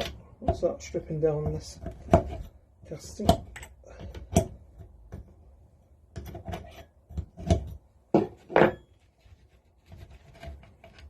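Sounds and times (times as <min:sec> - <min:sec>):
spanner knocking and scraping metal: 0:00.0 - 0:05.4.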